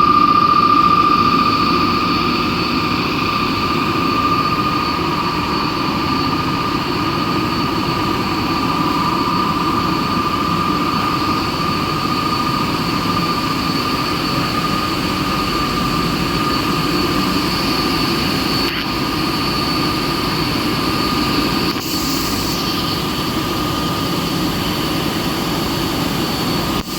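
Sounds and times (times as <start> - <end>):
wire drawing machinery whining: 0.0 - 26.9
short high hiss: 21.7 - 23.0.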